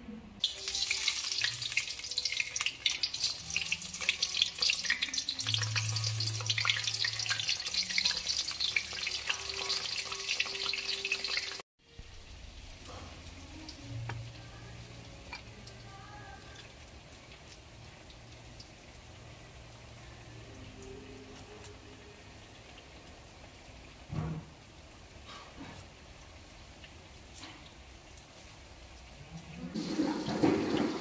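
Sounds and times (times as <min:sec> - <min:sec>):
tofu sizzling in hot oil: 0:00.4 - 0:15.9.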